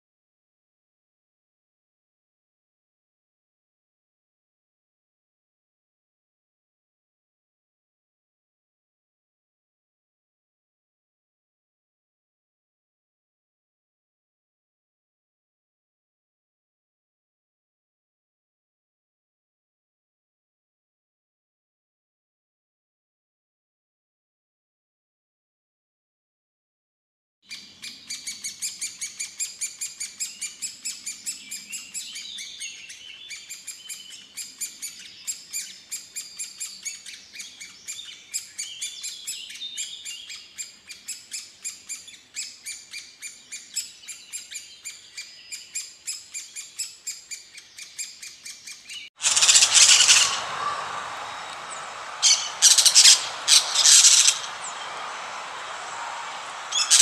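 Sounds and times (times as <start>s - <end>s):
small birds chirping: 27.5s - 57.0s
loud calls: 49.2s - 57.0s
steady hiss: 49.2s - 57.0s.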